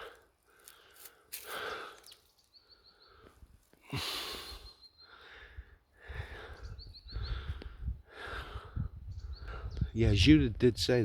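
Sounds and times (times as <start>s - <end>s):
person breathing near microphone: 0.0s - 2.2s, 2.8s - 9.8s
small bird calling: 1.6s - 5.5s.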